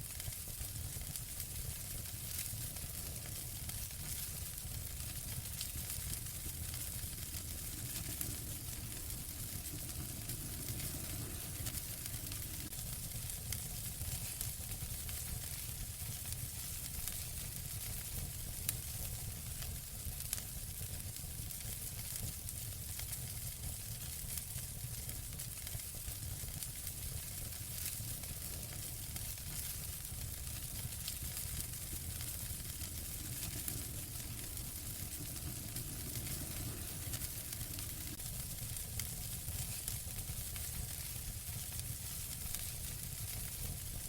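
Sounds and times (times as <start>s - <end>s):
fire crackling: 0.0s - 44.0s
loud fire pops: 0.1s - 19.6s, 26.3s - 44.0s
low rumble: 5.5s - 12.8s, 31.4s - 38.2s.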